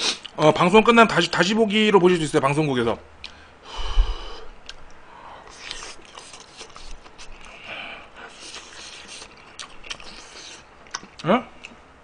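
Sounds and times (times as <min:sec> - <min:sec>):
man chewing and lip-smacking: 0:04.6 - 0:11.9.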